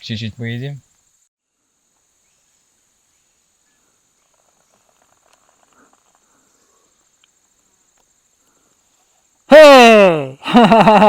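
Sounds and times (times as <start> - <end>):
insects chirring: 0.0 - 11.0
faint ticks: 4.2 - 9.2.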